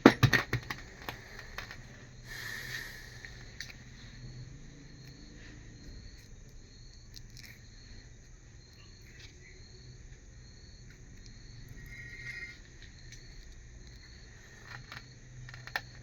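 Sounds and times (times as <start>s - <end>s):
insect-like chirping: 0.0s - 16.0s
low steady hum: 0.0s - 16.0s.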